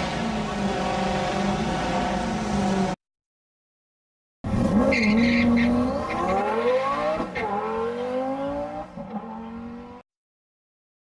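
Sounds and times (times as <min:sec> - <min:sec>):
drag car engine accelerating: 0:04.5 - 0:10.0
tyre squeal: 0:04.7 - 0:06.5.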